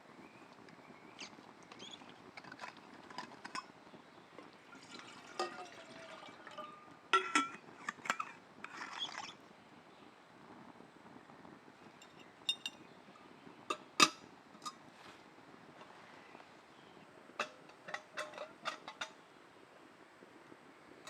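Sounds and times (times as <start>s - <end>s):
scraping or rustling: 1.1s - 3.7s, 7.8s - 9.4s, 14.6s - 16.2s
cookware clinking and knocking: 1.7s - 3.7s, 4.8s - 8.8s, 12.0s - 12.8s, 13.7s - 14.8s, 17.4s - 19.2s.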